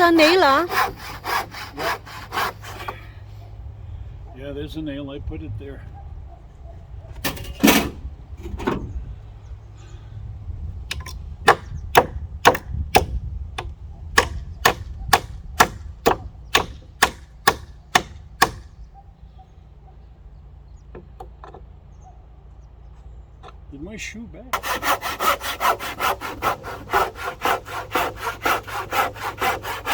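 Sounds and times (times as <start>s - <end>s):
hammer striking nail into wood: 10.9s - 18.7s.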